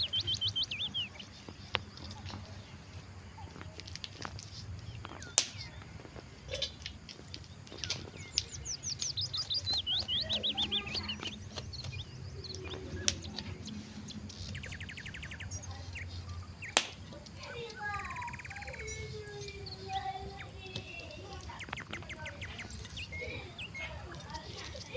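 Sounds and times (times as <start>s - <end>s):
songbirds singing: 0.0s - 24.9s
sharp clicks: 5.0s - 5.9s, 6.8s - 15.6s, 16.6s - 18.8s.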